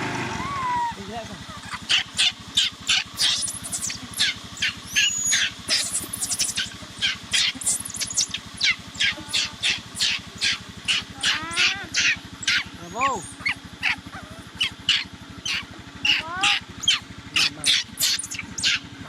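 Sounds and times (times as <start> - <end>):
harsh high-pitched bird calls: 0.3 - 19.0.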